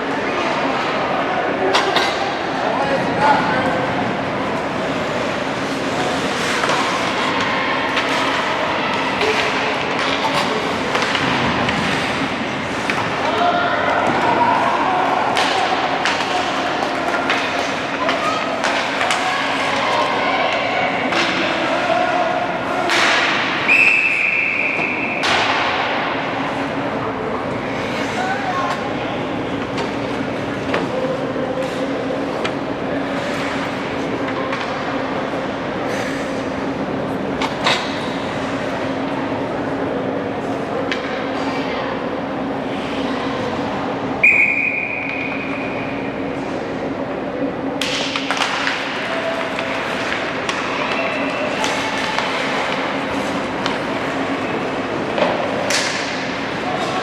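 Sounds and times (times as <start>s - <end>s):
hockey sticks and puck knocks: 4.5s - 13.3s, 15.2s - 21.8s, 22.8s - 23.7s, 24.7s - 26.4s, 47.8s - 57.0s
referee whistle: 23.7s - 25.1s, 44.2s - 45.5s
referee's whistle blast: 44.2s - 45.2s.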